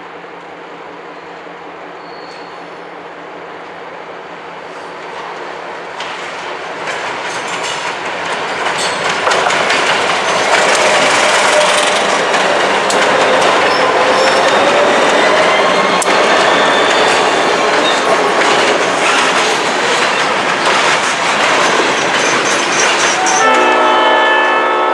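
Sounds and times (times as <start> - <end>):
train rolling past: 0.0 - 24.9
wheel squeal: 2.0 - 2.6, 13.4 - 18.0
wheels clicking over rail joints: 6.0 - 23.5.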